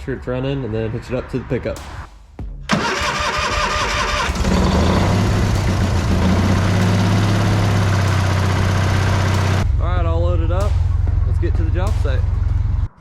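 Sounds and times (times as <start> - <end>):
electric starter cranking engine: 2.7 - 9.6
engine running steadily: 3.9 - 9.7.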